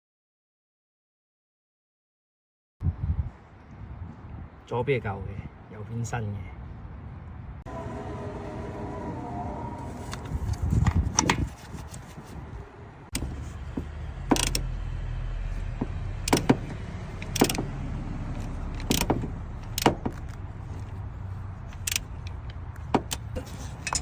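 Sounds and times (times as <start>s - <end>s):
steady low hum: 6.8s - 24.0s
sharp clicks: 14.3s - 14.7s, 16.2s - 17.7s, 18.4s - 20.4s
hand tools clinking: 21.8s - 24.0s.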